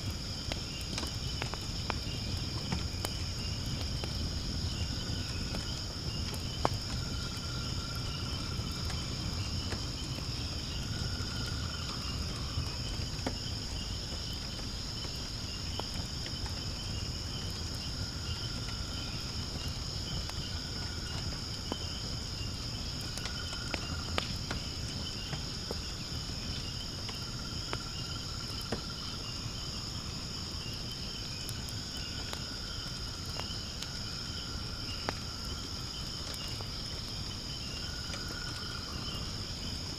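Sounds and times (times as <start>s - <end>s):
fire crackling and popping: 0.0s - 39.9s
insects chirping: 0.0s - 39.9s
low fire rumble: 0.0s - 39.9s.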